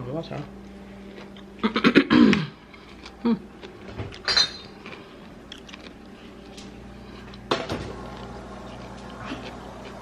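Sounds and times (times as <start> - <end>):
tableware clinking: 4.2 - 4.8.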